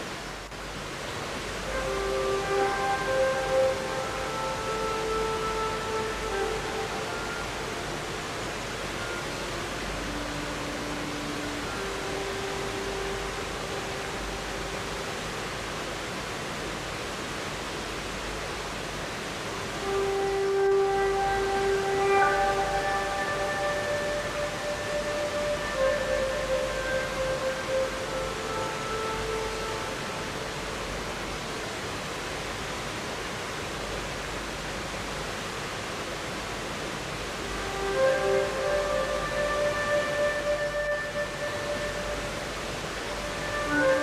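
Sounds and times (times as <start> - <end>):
river water flowing: 0.0 - 44.0.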